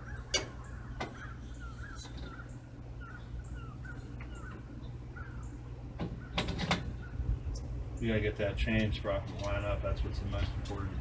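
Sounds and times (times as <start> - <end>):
low steady hum: 0.0 - 11.0
small birds chirping: 0.0 - 11.0.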